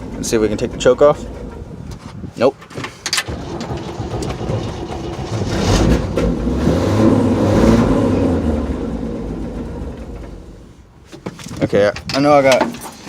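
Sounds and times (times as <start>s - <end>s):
car engine running: 0.0s - 2.3s, 3.2s - 10.9s.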